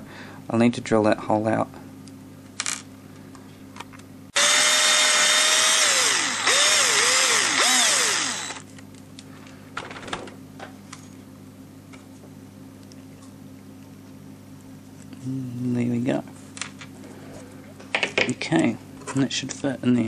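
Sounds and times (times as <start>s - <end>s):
power tool drilling plastic: 4.4s - 8.6s.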